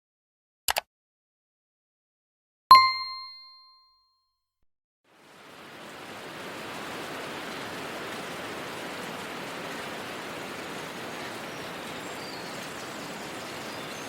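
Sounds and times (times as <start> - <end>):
bright chime: 2.7 - 3.8
steady outdoor hiss: 5.1 - 14.0.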